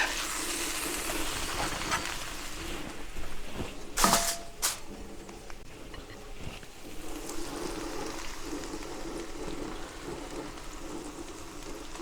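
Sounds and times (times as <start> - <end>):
food sizzling on griddle: 0.0 - 2.6, 7.0 - 12.0.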